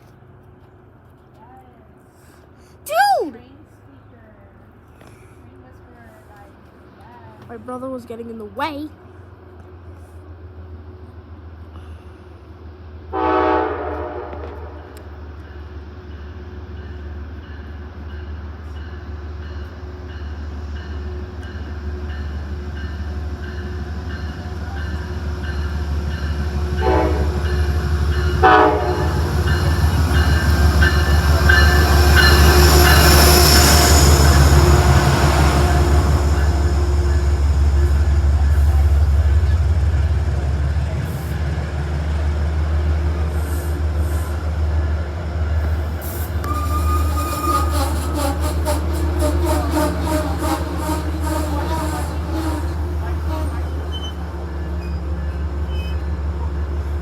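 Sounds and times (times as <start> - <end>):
train engine rumble: 0.0 - 57.0
train horn blasts: 13.1 - 15.0, 26.6 - 38.1, 46.2 - 54.1
high squeal: 46.2 - 56.1.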